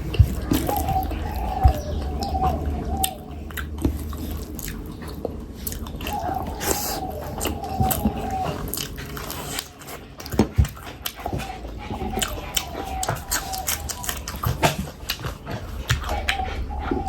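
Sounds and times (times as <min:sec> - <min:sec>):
wet chewing and lip smacks: 0:00.0 - 0:17.0.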